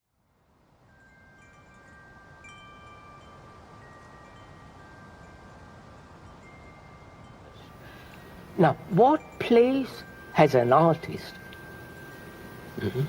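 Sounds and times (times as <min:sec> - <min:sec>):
wind chimes ringing: 0:00.8 - 0:13.0
ambient background: 0:07.5 - 0:13.0.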